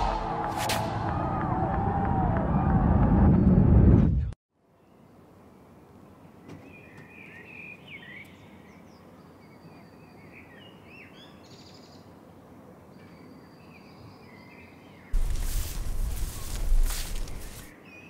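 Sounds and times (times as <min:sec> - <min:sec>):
faint outdoor background noise: 0:04.5 - 0:18.0
small birds chirping: 0:06.0 - 0:12.2.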